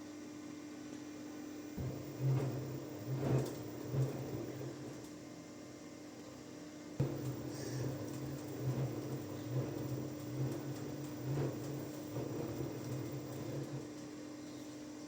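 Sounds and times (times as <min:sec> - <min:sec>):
washing machine motor hum: 0:01.8 - 0:05.4, 0:07.0 - 0:14.1
washing machine drum turning: 0:07.0 - 0:13.9.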